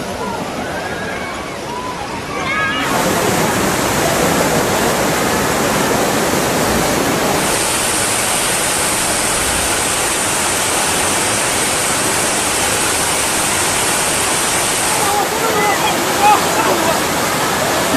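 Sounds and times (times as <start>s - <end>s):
water rushing: 0.0s - 17.9s
bright hiss: 7.4s - 16.6s.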